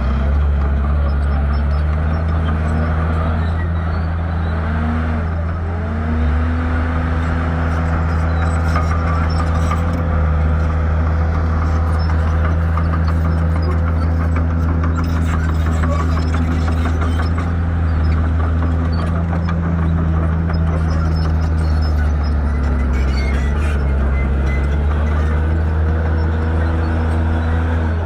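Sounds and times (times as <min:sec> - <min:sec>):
bulldozer diesel engine under load: 0:00.0 - 0:28.0.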